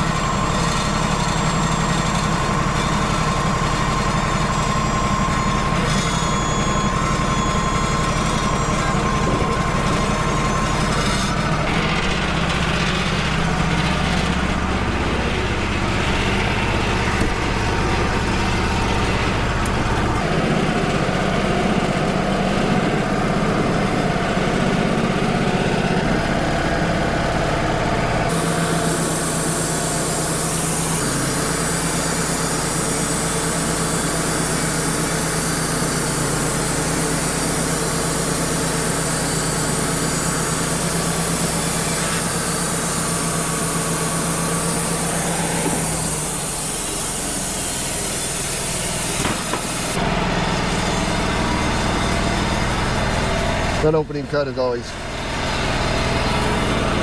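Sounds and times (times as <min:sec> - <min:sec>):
sawmill engine hum: 0:00.0 - 0:57.0
band blade cutting log hiss: 0:28.3 - 0:50.0.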